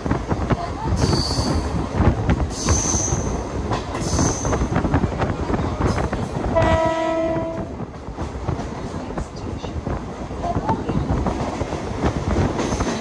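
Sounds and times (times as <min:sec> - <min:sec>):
train rumbling: 0:00.0 - 0:13.0
train horn: 0:06.5 - 0:07.7.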